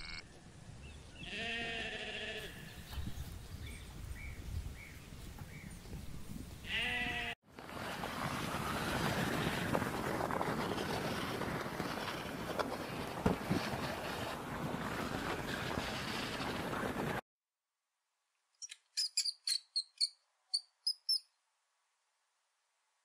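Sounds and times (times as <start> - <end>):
sheep bleating: 0.0 - 0.2, 1.2 - 2.7, 6.6 - 7.4
wind noise on microphone: 2.5 - 17.2.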